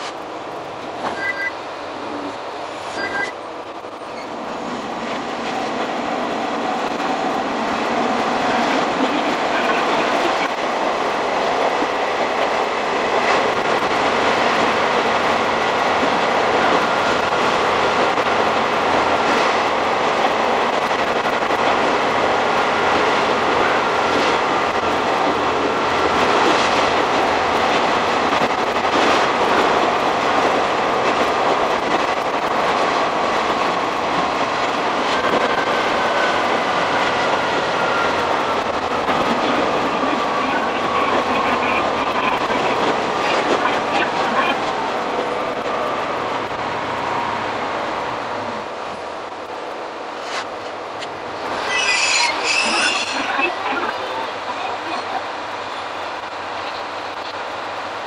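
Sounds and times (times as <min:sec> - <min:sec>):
railcar engine and wheel noise: 0:00.0 - 0:58.0.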